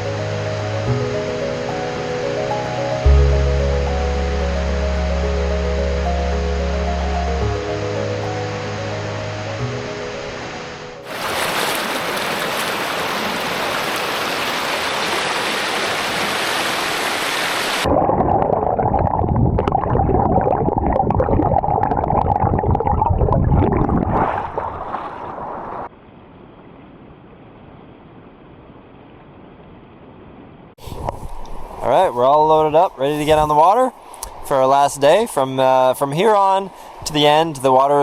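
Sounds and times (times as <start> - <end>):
waterfall rushing: 0.0 - 17.9
water churning and gurgling: 11.0 - 25.9.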